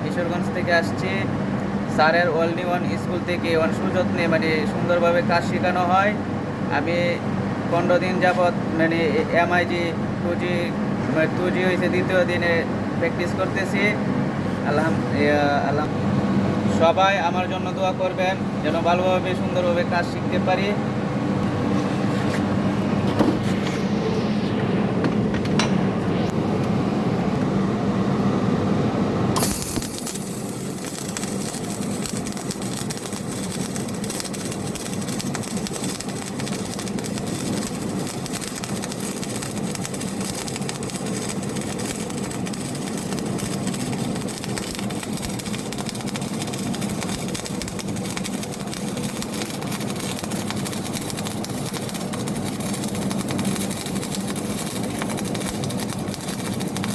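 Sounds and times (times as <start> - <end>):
low dense hum: 0.0 - 56.9
welding arc crackling hiss: 29.4 - 56.9.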